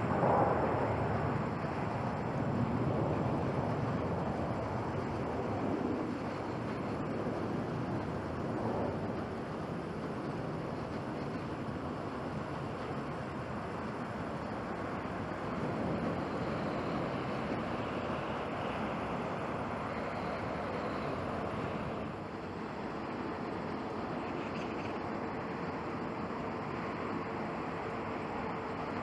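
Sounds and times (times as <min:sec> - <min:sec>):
faint steady hum: 0:00.0 - 0:29.0
jet engines at take-off thrust: 0:00.0 - 0:29.0.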